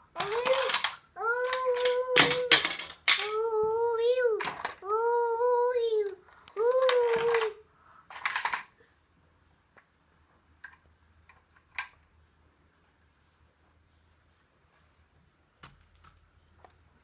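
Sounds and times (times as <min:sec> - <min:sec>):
toddler singing aah: 0:00.2 - 0:02.6, 0:03.2 - 0:07.6.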